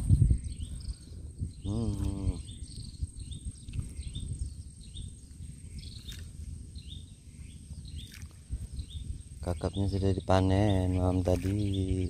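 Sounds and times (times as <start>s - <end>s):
steady low rumble: 0.0s - 12.0s
bird calling with rising chirps: 0.2s - 9.8s.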